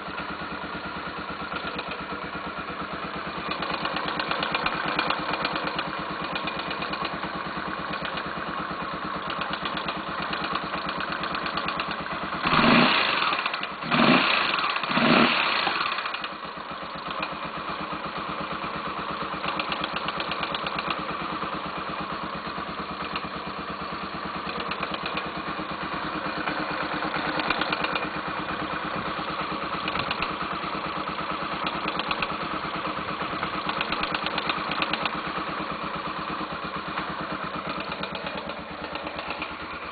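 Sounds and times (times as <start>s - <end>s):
motorcycle engine idling and revving: 0.0s - 39.9s
fast engine tapping: 3.3s - 8.5s, 9.2s - 16.4s, 19.2s - 21.1s, 24.0s - 39.9s.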